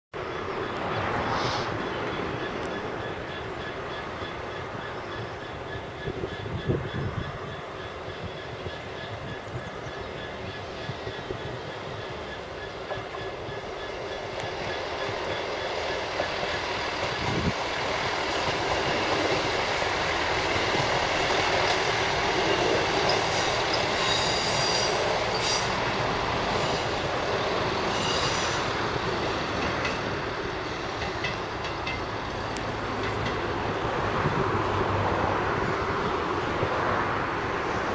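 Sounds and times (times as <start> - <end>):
train passing on rails: 0.1 - 37.9
wheels squealing: 18.3 - 32.0.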